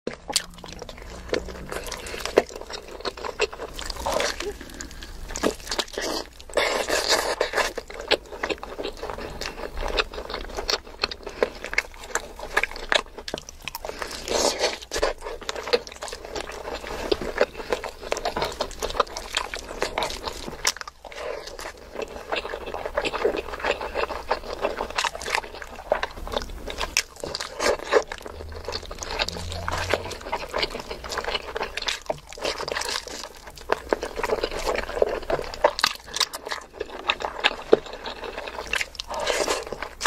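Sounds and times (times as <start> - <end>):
wet chewing and biting: 0.1 - 40.0.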